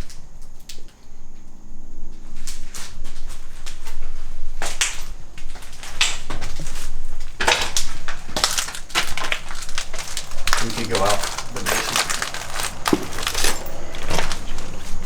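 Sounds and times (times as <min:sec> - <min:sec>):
footsteps crunching on debris: 0:02.1 - 0:15.0
knocks and clatter: 0:04.6 - 0:15.0.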